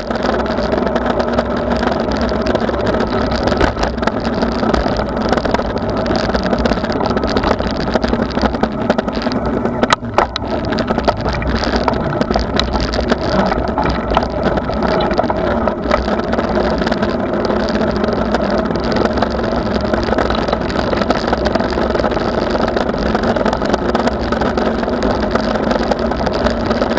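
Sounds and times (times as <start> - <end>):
bicycle tyre noise: 0.0 - 26.9
wind noise: 0.0 - 26.9.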